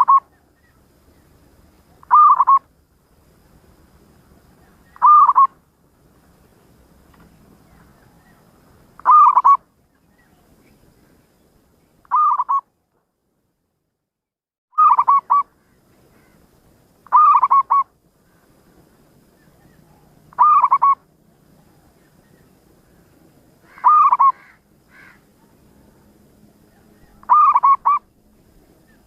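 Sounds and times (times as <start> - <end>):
dove cooing: 0.0 - 0.3, 2.0 - 2.6, 4.8 - 5.5, 9.0 - 9.6, 12.1 - 12.6, 14.8 - 15.4, 17.1 - 17.9, 19.6 - 21.0, 23.7 - 26.0, 26.7 - 28.1.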